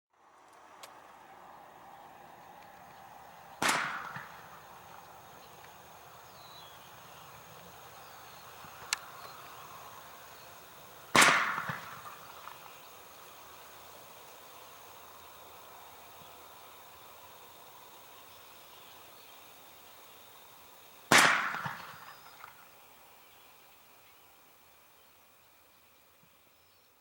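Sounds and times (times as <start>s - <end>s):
bird-scare cannon bangs: 3.6s - 4.6s, 11.2s - 12.6s, 21.1s - 22.6s.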